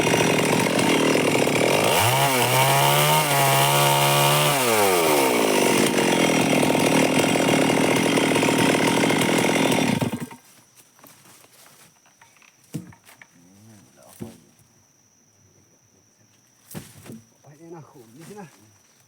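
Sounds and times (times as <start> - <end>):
chainsaw running: 0.0 - 10.4.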